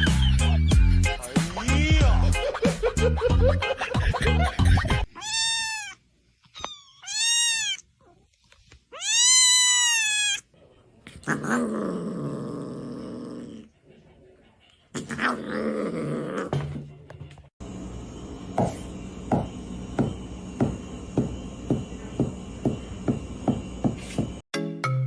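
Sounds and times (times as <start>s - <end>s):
cat meowing: 5.1s - 8.2s, 8.9s - 10.5s.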